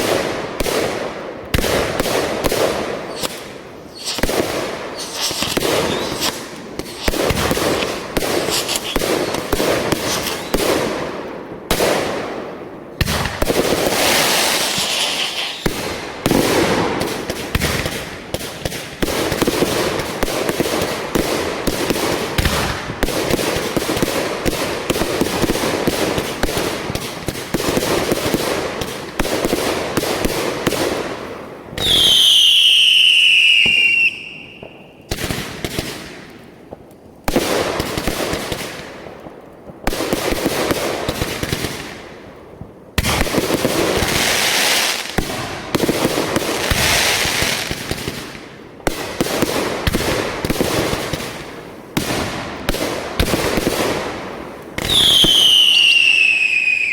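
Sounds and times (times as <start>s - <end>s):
fireworks crackling and popping: 0.0s - 56.9s
whistling firework shrieking: 3.1s - 10.7s, 14.0s - 15.7s, 31.8s - 34.8s, 54.9s - 56.9s.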